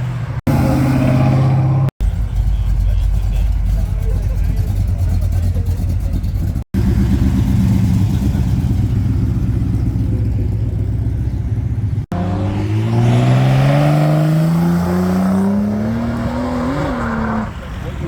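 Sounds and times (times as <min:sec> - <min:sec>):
car engine rumbling: 0:00.0 - 0:18.0
car accelerating away: 0:12.1 - 0:18.0.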